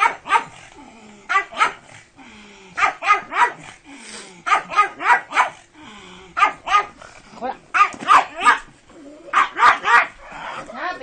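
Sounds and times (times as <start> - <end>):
dog barking excitedly: 0.0 - 0.6, 1.3 - 1.9, 2.8 - 3.7, 4.4 - 5.6, 6.4 - 7.0, 7.7 - 8.7, 9.3 - 10.6.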